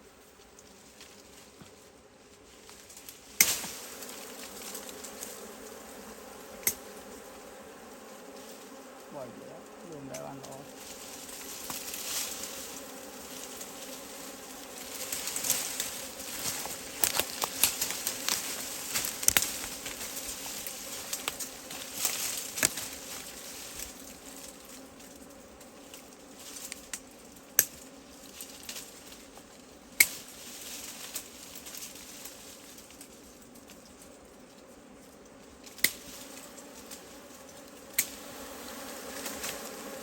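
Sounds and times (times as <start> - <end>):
bees buzzing: 0.1 - 40.0
sharp clicks and crackles: 16.4 - 20.0.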